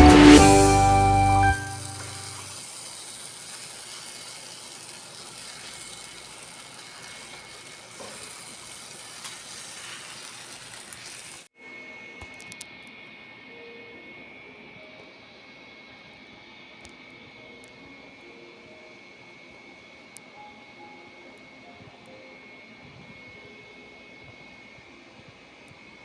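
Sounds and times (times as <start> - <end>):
food sizzling in a pan: 0.1 - 11.5.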